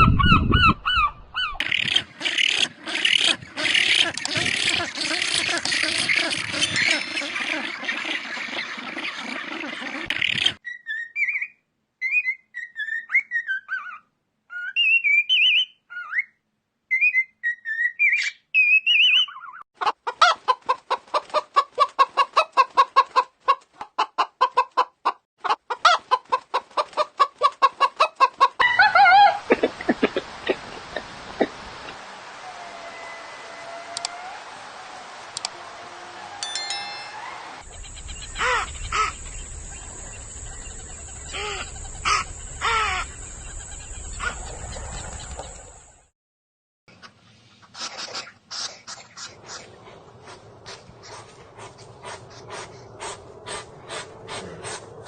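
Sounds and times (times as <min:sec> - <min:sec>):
bird chirping: 0:00.0 - 0:19.6, 0:36.5 - 0:46.0
chicken clucking: 0:19.8 - 0:30.6.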